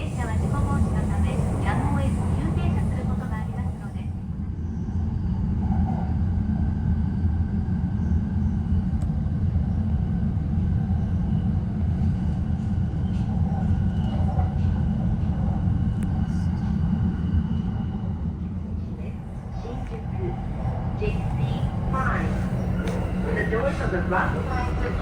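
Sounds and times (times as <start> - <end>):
train wheels rumbling on track: 0.0 - 25.0.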